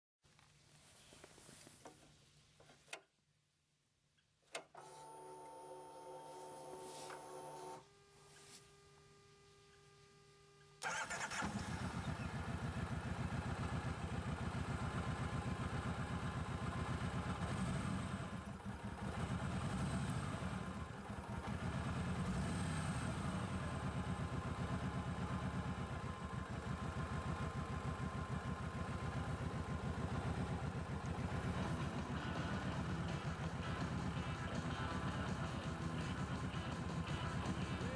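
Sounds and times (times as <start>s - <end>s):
faint steady hum: 0.3s - 10.9s
motorcycle engine idling: 10.8s - 37.9s.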